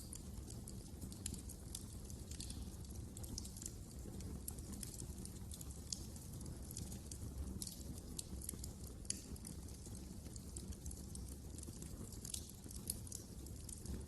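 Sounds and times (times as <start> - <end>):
low rumble of burning fire: 0.0 - 14.0
wood fire crackling: 0.0 - 14.0.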